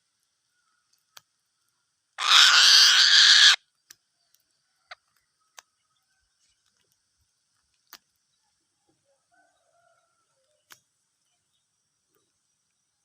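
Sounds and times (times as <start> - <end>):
eagle screeching: 2.2 - 3.6
faint sharp clicks: 3.8 - 5.7, 6.5 - 8.2, 10.4 - 10.9.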